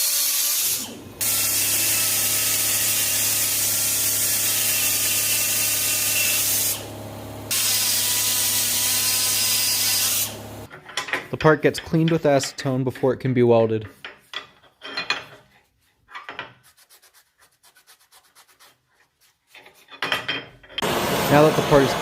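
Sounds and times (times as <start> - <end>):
die grinder grinding metal: 0.0 - 10.7.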